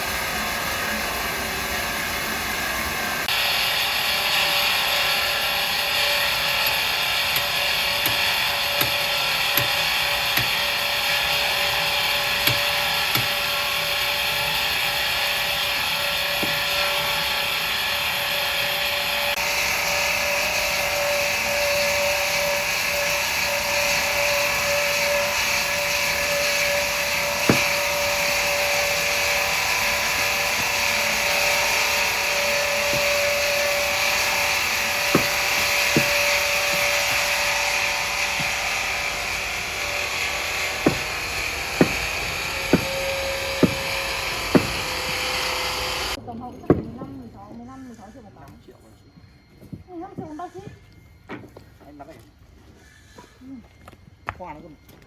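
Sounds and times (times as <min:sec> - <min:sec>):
sawmill saw cutting wood: 0:00.0 - 0:46.2
sharp knocks: 0:27.4 - 0:27.8, 0:35.1 - 0:36.9, 0:40.8 - 0:41.2, 0:41.8 - 0:45.2.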